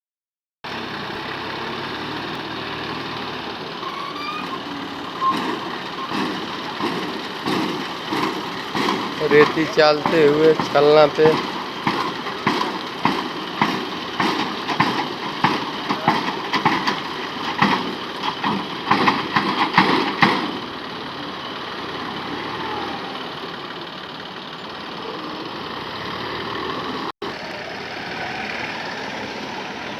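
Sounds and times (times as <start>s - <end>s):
tractor diesel engine thumping: 2.4s - 21.7s.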